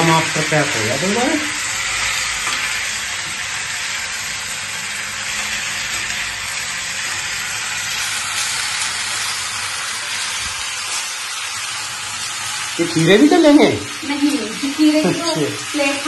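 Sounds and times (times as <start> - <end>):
potato slices sizzling in oil: 0.0 - 16.0.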